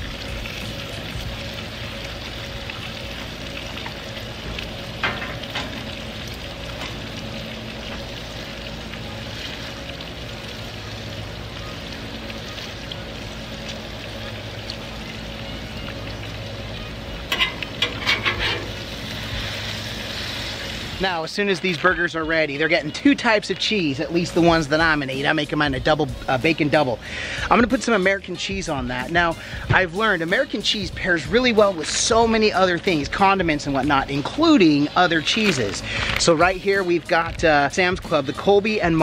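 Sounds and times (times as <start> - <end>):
meat sizzling on a griddle: 0.0 - 39.0
metal utensil clacking and scraping: 17.3 - 18.9.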